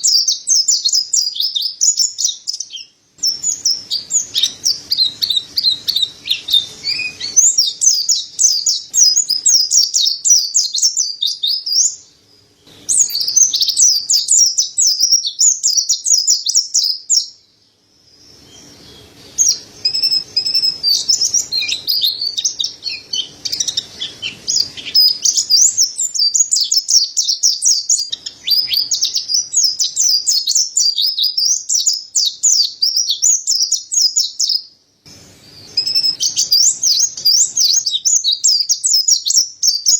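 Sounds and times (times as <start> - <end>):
bird singing high twittering song: 0.0 - 39.9.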